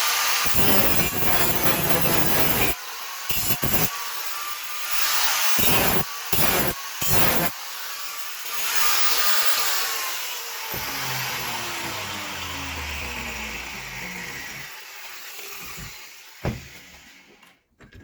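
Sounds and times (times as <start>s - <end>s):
power tool hissing and whining: 0.0s - 17.4s.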